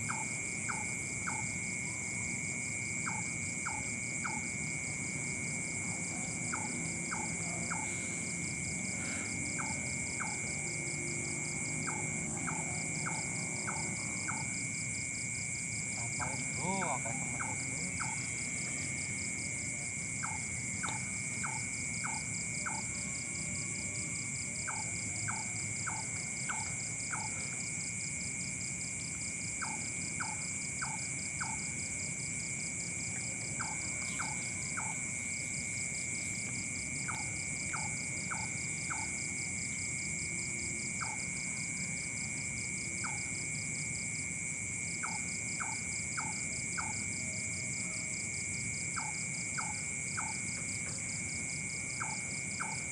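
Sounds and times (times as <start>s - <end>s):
insects shrilling: 33.6s - 39.7s.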